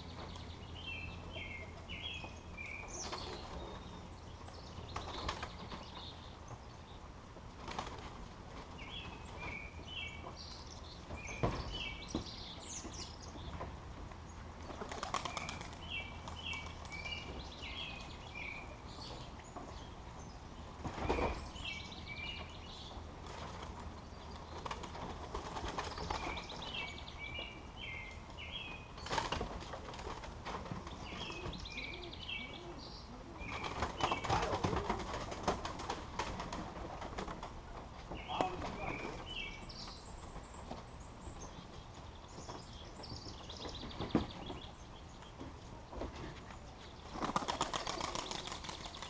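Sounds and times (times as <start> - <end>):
pigeon wings flapping: 7.6 - 8.2, 14.7 - 16.9, 24.5 - 26.5, 33.5 - 37.6, 47.2 - 49.0.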